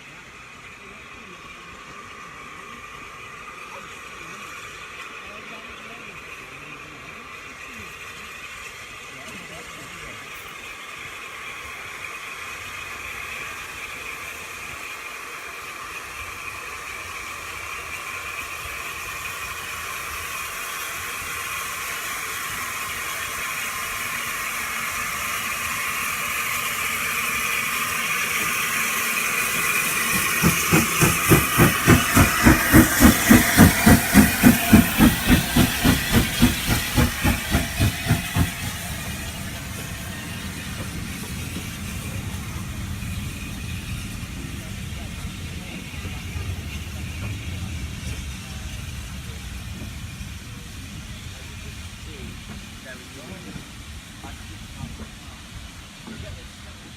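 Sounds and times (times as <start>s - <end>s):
steam locomotive hissing: 0.0s - 56.9s
locomotive exhaust beats: 18.3s - 56.9s.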